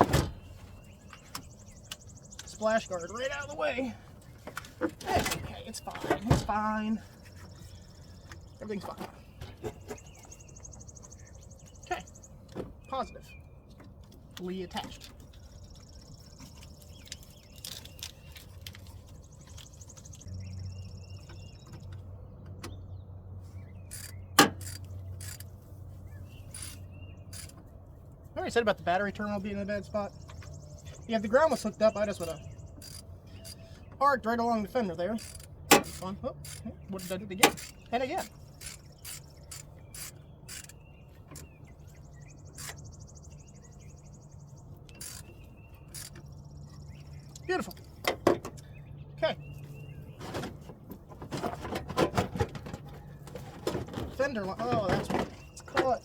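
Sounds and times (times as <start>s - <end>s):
hand tools clicking and knocking: 35.1s - 41.5s, 50.2s - 56.0s.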